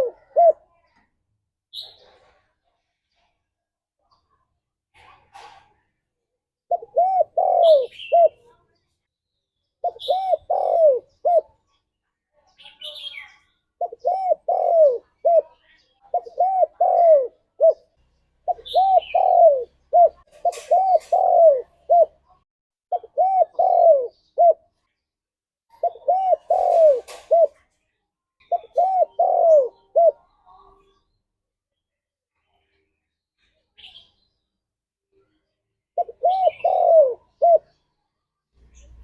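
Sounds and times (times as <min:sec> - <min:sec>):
dove cooing: 0:00.0 - 0:00.7, 0:06.7 - 0:08.4, 0:09.8 - 0:11.6, 0:13.8 - 0:22.2, 0:22.9 - 0:24.6, 0:25.7 - 0:27.6, 0:28.4 - 0:30.3, 0:36.0 - 0:37.8.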